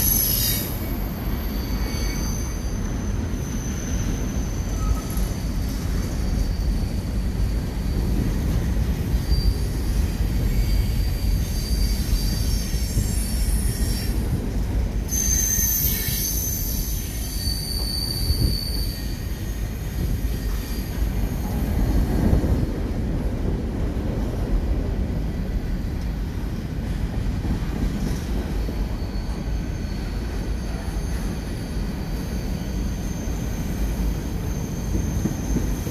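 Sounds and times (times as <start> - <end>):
high-pitched wheel squeal: 0.0 - 8.1, 9.2 - 14.2, 15.1 - 21.6, 28.8 - 35.9
train wheels rumbling on rails: 0.0 - 35.9.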